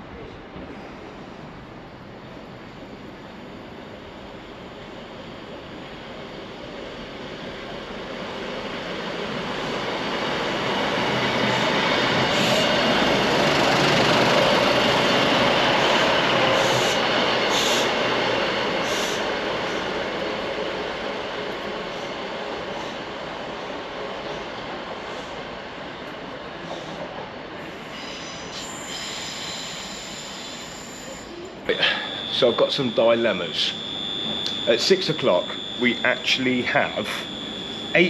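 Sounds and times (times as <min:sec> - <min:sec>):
train passing on rails: 0:00.0 - 0:38.0
high-pitched wheel squeals: 0:27.8 - 0:38.0.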